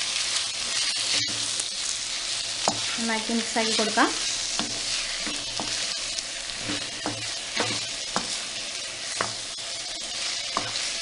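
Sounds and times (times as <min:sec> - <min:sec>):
chicken sizzling in hot oil: 0:00.0 - 0:11.0
stirring strokes scraping pan: 0:00.0 - 0:11.0.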